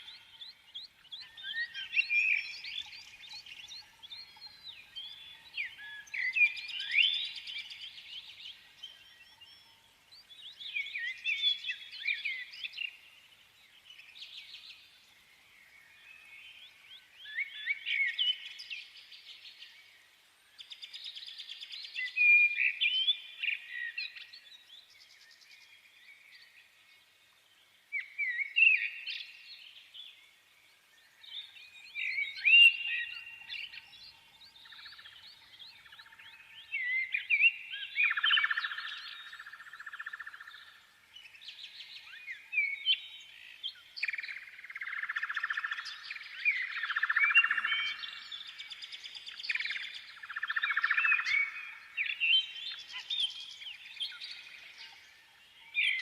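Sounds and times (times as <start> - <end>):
songbird chirping and trilling: 0.0 - 56.0.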